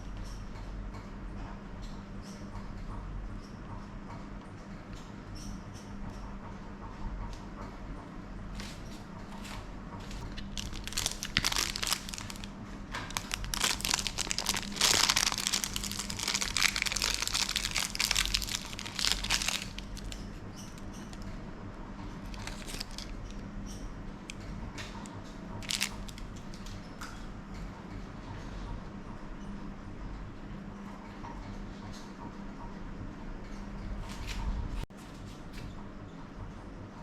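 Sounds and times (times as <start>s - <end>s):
steady low hum: 0.0s - 37.0s
crinkling and rustling handling: 8.6s - 21.3s, 22.0s - 23.5s, 24.3s - 26.7s.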